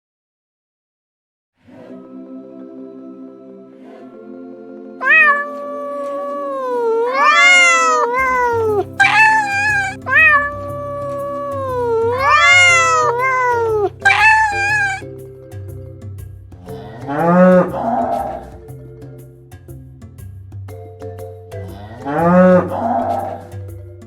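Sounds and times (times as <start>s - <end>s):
cat meowing: 5.0s - 15.0s
low animal call: 5.0s - 15.1s
light background music: 7.4s - 24.0s.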